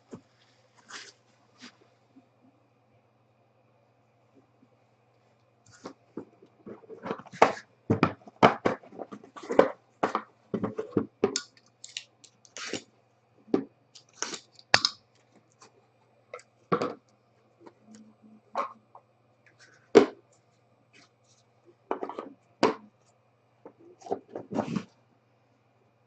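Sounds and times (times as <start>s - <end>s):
faint steady hum: 0.0s - 26.0s
packaging crinkling and tearing: 11.7s - 12.9s, 14.0s - 15.3s.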